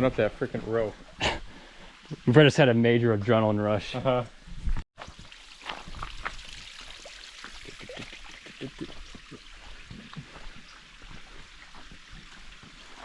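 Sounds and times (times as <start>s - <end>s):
creek water splashing over rocks: 5.0s - 13.0s.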